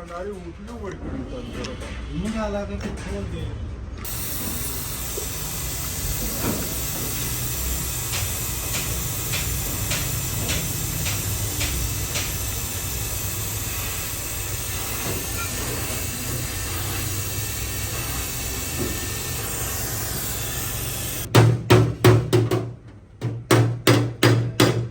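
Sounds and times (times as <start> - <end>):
steady hiss: 4.1 - 21.3
sharp ticks: 6.1 - 13.1.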